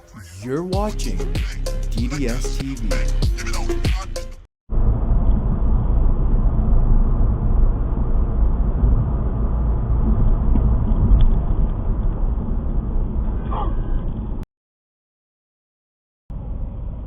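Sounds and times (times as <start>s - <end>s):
car engine and road rumble: 4.7s - 14.4s, 16.3s - 17.0s.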